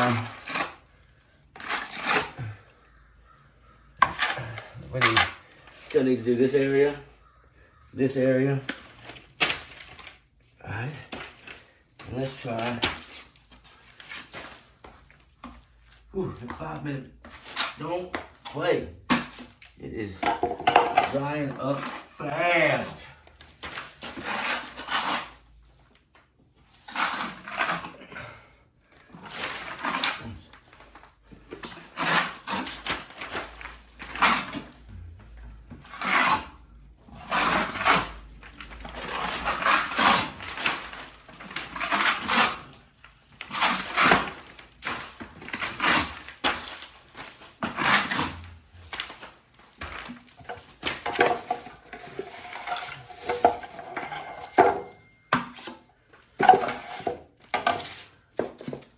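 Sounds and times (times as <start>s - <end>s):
trowel scraping plaster wall: 0.0s - 3.0s, 3.9s - 7.1s, 20.8s - 25.6s, 26.7s - 30.6s, 31.4s - 35.0s, 35.7s - 58.9s.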